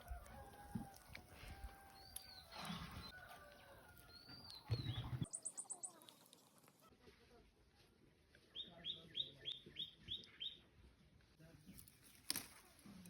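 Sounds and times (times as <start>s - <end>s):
bird chirps: 4.1s - 6.3s, 8.5s - 10.6s.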